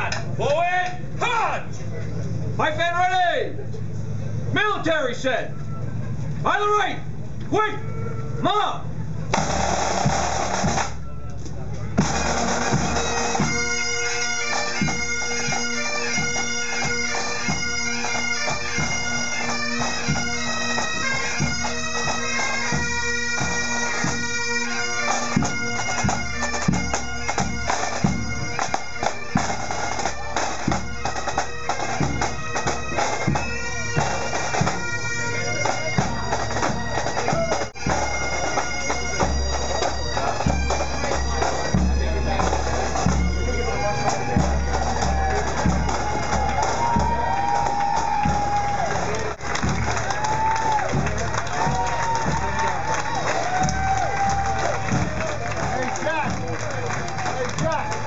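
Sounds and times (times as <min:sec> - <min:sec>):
person calling a command: 0:00.0 - 0:01.8, 0:04.6 - 0:05.6, 0:06.4 - 0:08.9
drums beating: 0:05.9 - 0:58.0
bagpipes playing a tune: 0:11.8 - 0:49.8.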